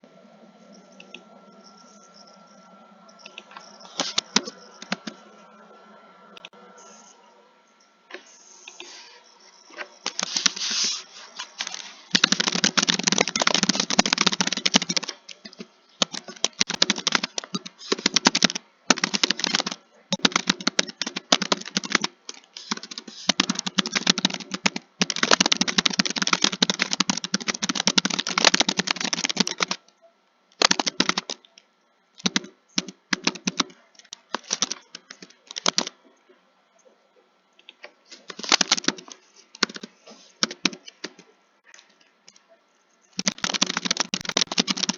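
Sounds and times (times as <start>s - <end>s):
computer keyboard typing: 3.1s - 5.3s, 10.0s - 29.8s, 30.6s - 31.5s, 32.2s - 36.0s, 38.3s - 41.3s, 43.1s - 44.9s.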